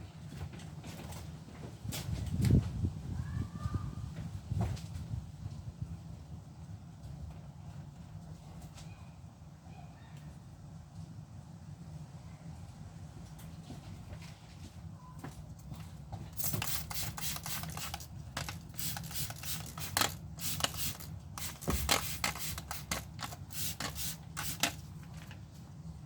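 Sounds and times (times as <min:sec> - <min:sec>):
brush scrubbing: 0:16.4 - 0:24.8.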